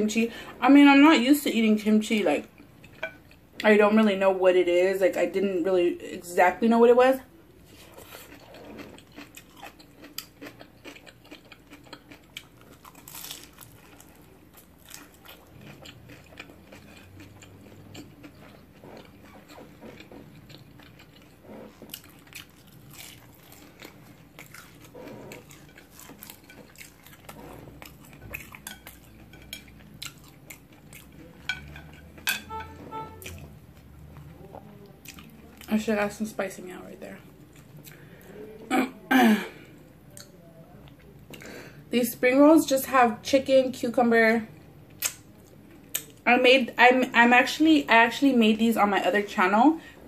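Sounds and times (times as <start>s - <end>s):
chewing crunchy food: 7.6s - 32.4s, 33.2s - 35.7s.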